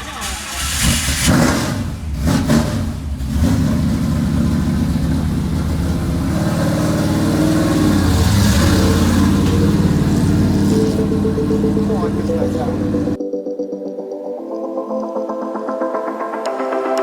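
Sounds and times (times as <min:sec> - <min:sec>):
race car engine revving: 0:00.0 - 0:13.2.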